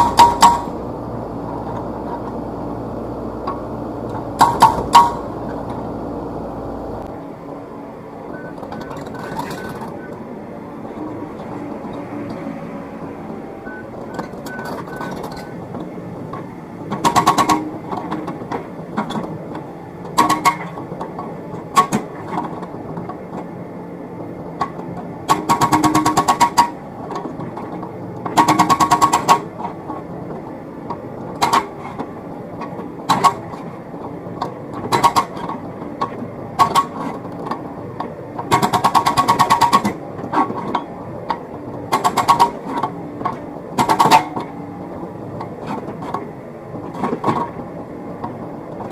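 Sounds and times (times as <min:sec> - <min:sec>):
hydraulic breaker hammering: 0:00.0 - 0:00.8, 0:04.4 - 0:05.4, 0:16.9 - 0:18.4, 0:20.1 - 0:20.8, 0:25.3 - 0:26.8, 0:28.3 - 0:29.5, 0:38.4 - 0:40.6, 0:41.9 - 0:42.9, 0:43.8 - 0:44.5
excavator engine running: 0:00.0 - 0:48.9.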